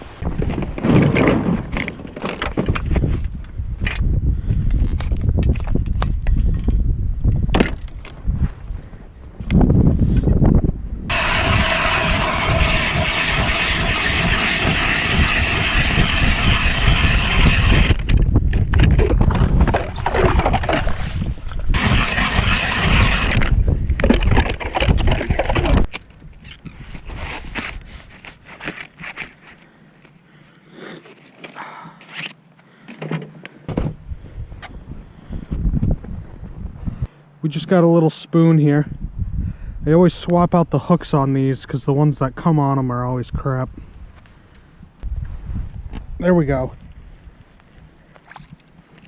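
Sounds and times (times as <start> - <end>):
ice auger grinding through ice: 11.1 - 18.2, 19.0 - 25.9.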